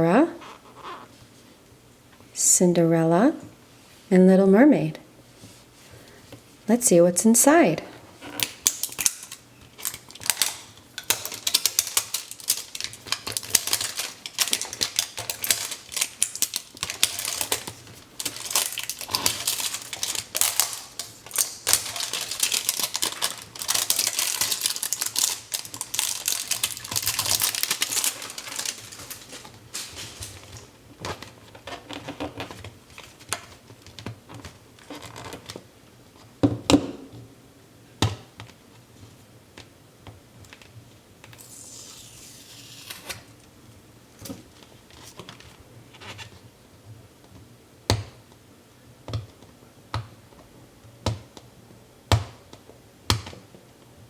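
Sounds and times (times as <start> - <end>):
plastic wrapping crinkling: 8.2 - 35.7.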